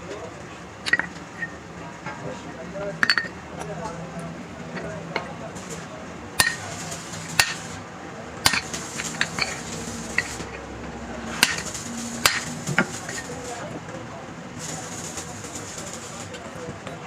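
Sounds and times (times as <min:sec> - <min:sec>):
hammer striking steel: 0:00.9 - 0:01.6, 0:03.0 - 0:03.7, 0:04.8 - 0:07.8, 0:08.4 - 0:13.7.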